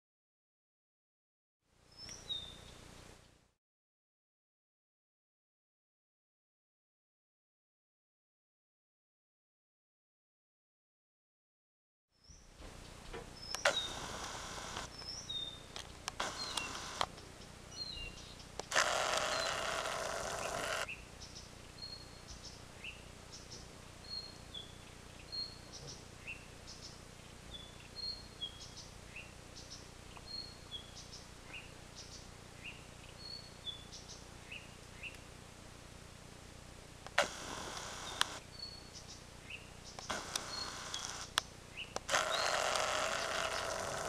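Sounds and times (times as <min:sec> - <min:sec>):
small bird chirping: 0:01.9 - 0:02.8, 0:12.2 - 0:35.3, 0:37.2 - 0:44.0.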